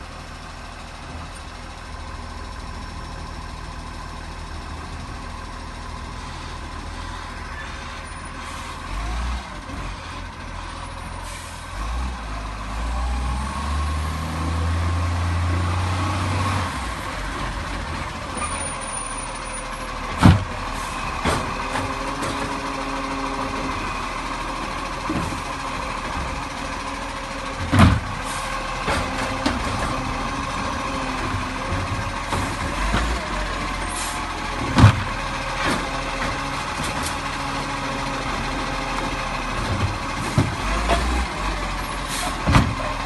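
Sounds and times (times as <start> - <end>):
garbage truck engine: 0.0 - 43.0.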